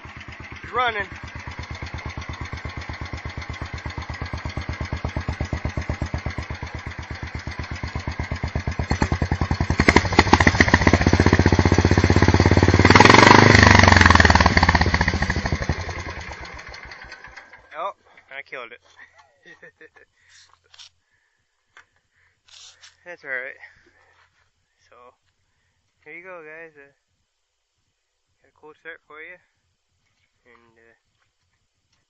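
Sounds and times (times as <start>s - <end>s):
garden tractor engine running: 0.0s - 17.8s.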